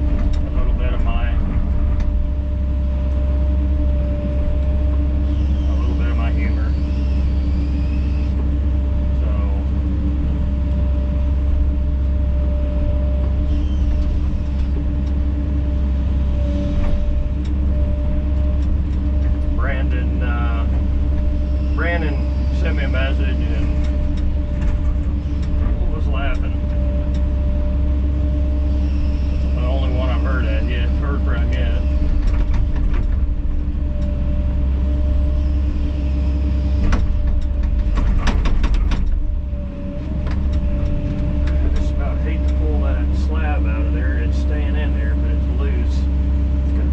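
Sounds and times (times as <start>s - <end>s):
excavator diesel engine running: 0.0s - 46.9s
short knocks and clicks: 36.8s - 39.3s.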